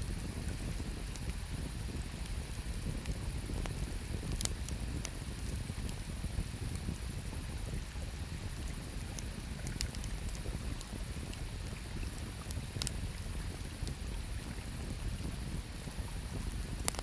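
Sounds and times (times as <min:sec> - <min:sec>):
campfire crackling and popping: 0:00.1 - 0:17.0.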